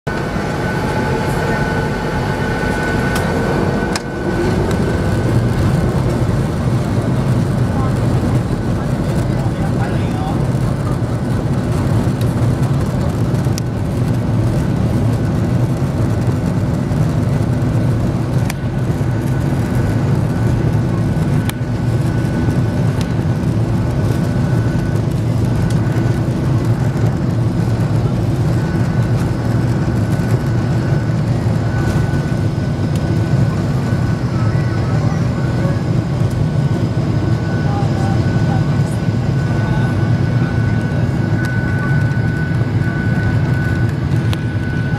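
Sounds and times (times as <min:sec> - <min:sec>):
jet engine roar in cabin: 0:00.1 - 0:44.9.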